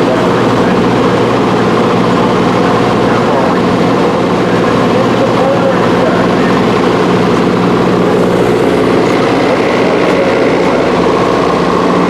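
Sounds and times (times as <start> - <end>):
race engine idling: 0.0 - 12.0.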